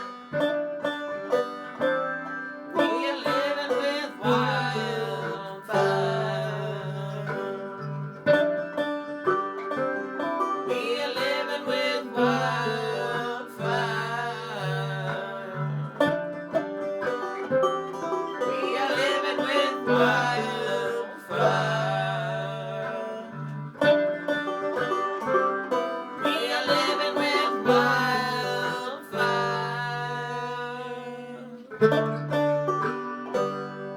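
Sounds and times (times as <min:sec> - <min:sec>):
banjo picking: 0:00.0 - 0:33.9
person singing: 0:02.7 - 0:07.9, 0:10.4 - 0:16.2, 0:18.4 - 0:23.6, 0:26.2 - 0:32.0.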